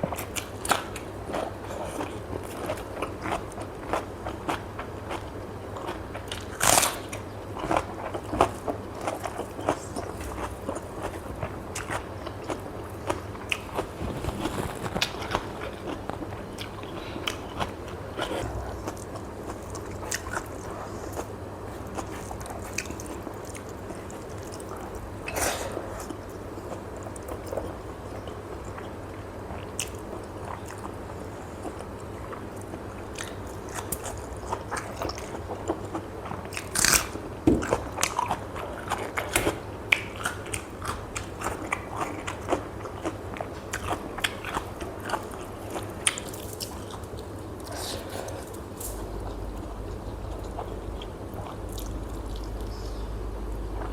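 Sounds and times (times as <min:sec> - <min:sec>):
mouth chewing with crunches: 0:00.1 - 0:53.9.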